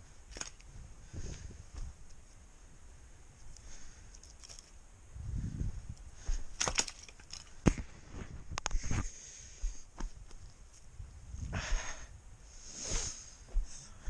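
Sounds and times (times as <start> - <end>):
dry twigs and leaves crackling: 0.0 - 2.4, 3.2 - 4.9, 5.7 - 11.1
twigs snapping: 0.2 - 0.7, 3.4 - 4.8, 5.9 - 7.9.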